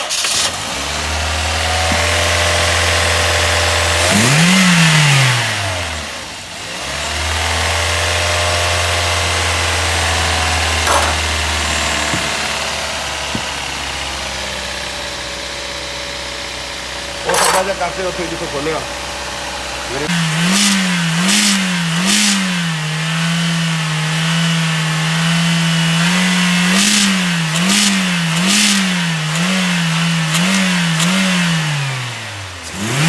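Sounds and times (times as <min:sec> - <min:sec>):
car engine idling and revving: 0:00.0 - 0:33.0.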